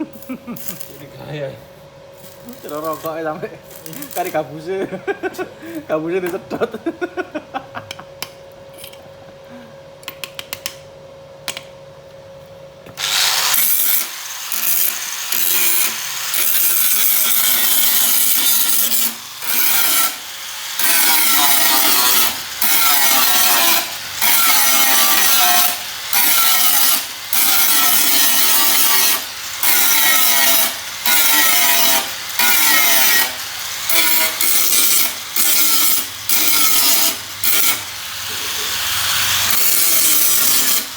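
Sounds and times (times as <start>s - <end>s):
tool rasping on sheet metal: 13.4s - 20.2s, 20.8s - 40.9s.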